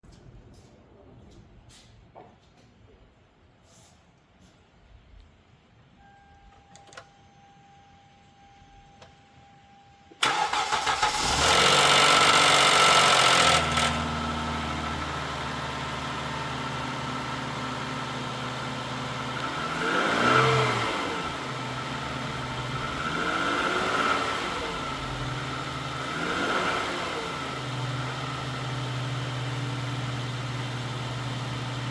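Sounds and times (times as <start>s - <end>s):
car engine starting and revving: 10.2s - 31.9s.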